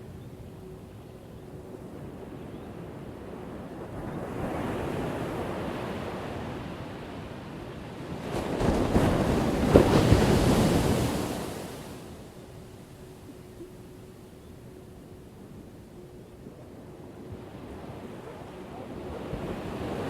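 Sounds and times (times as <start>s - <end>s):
ocean waves crashing: 8.1s - 12.2s.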